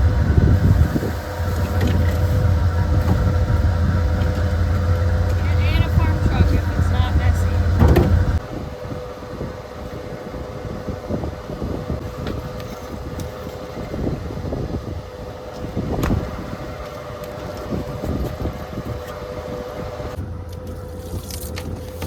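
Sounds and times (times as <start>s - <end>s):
motor running with low rumble: 0.0s - 22.0s
knocks and clunks: 1.4s - 8.4s.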